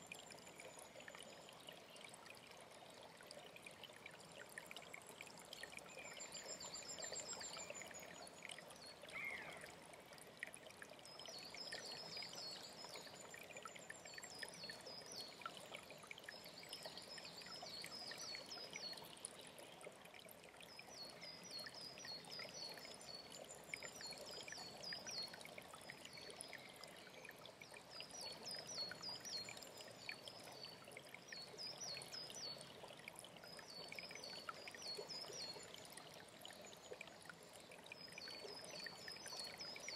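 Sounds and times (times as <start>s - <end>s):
mountain stream flowing: 0.0s - 39.9s
songbird singing: 5.8s - 9.7s.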